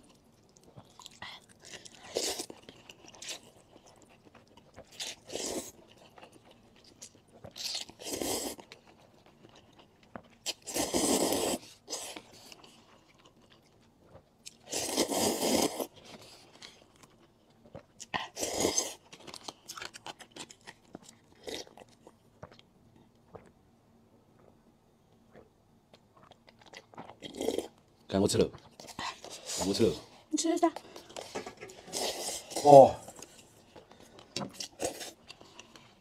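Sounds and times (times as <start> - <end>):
biting and crunching: 0.6 - 22.7
soft chewing clicks: 19.1 - 23.6, 24.3 - 29.2.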